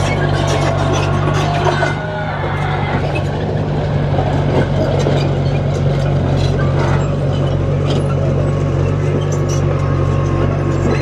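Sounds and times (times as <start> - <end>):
heavy diesel machine running: 0.0 - 11.0
clinks and knocks of metal and stone: 4.6 - 11.0.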